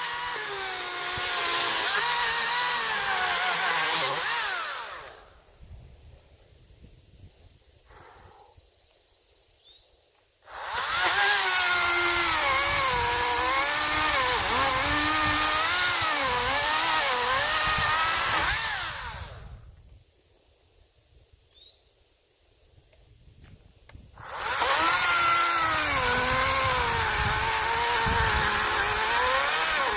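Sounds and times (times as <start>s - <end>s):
electric chainsaw cutting wood: 0.0s - 5.3s, 10.4s - 19.6s, 24.2s - 29.9s.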